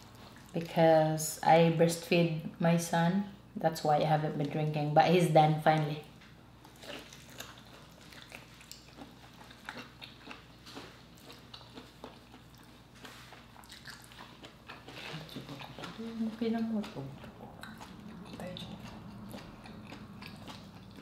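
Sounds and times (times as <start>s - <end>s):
chewing with mouth clicks: 0.0s - 0.7s, 6.6s - 21.0s.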